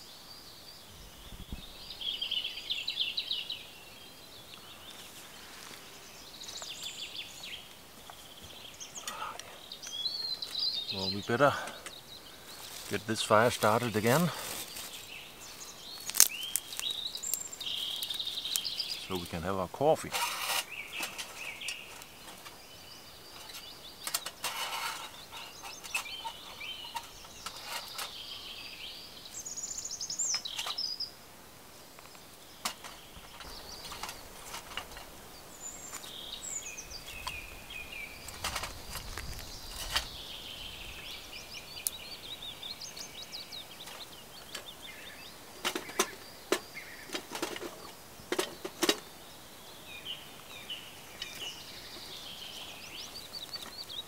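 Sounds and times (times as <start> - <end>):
songbirds twittering: 0.0 - 54.0
twigs knocking in metal stove: 16.0 - 19.3.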